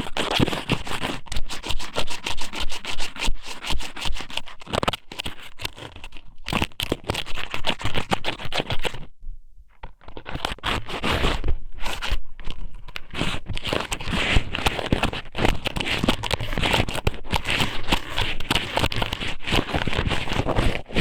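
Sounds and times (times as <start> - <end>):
crackling and scratching at microphone: 0.0 - 21.0.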